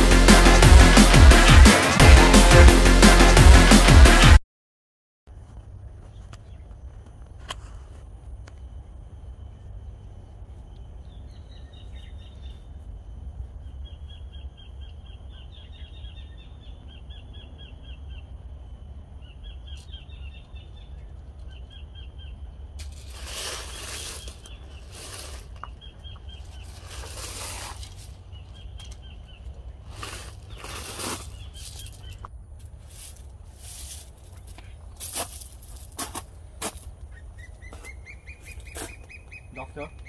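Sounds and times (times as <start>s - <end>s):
bird trilling: 37.1s - 40.0s.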